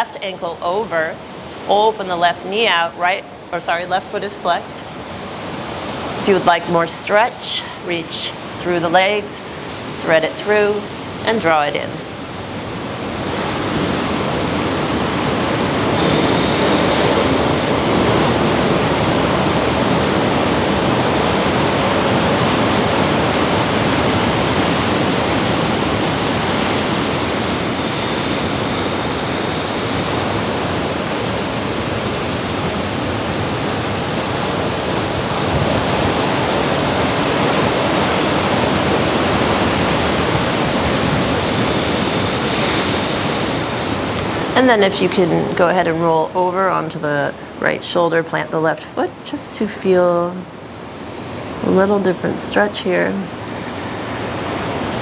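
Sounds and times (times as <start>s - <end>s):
ocean waves washing on beach: 0.0s - 55.0s.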